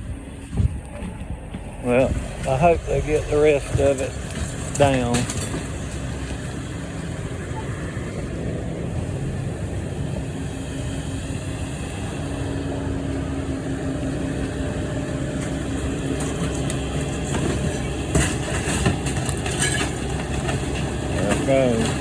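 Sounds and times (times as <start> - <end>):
excavator engine humming: 0.0 - 22.0
wood and debris cracking and crashing: 2.2 - 6.5, 15.8 - 22.0.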